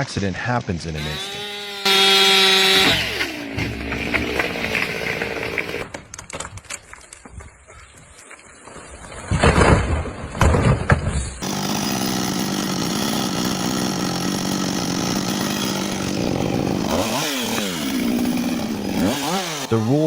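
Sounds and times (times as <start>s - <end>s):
chainsaw running and revving: 1.0s - 5.9s, 11.4s - 20.0s.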